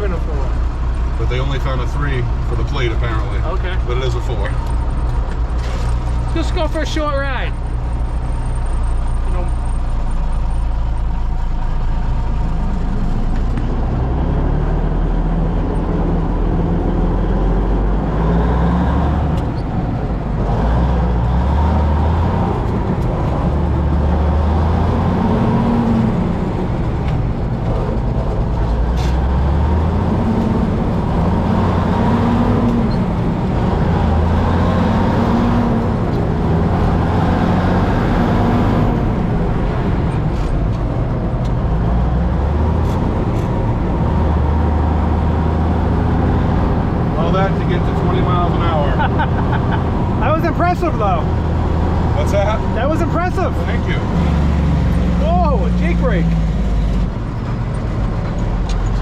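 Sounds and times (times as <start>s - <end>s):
truck diesel engine revving: 0.0s - 59.0s.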